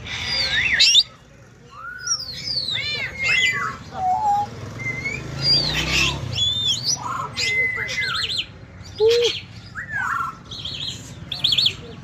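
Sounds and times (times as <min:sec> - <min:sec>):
parrot whistling and chirping: 0:00.0 - 0:08.5.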